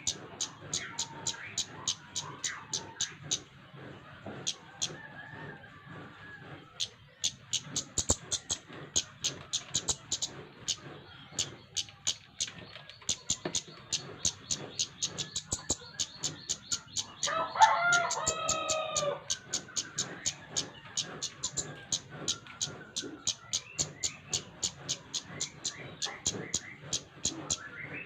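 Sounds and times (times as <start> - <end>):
high-pitched bird ticks: 0.0 - 3.5, 4.4 - 5.0, 6.8 - 27.8
rooster crowing: 4.7 - 6.6, 17.2 - 19.2.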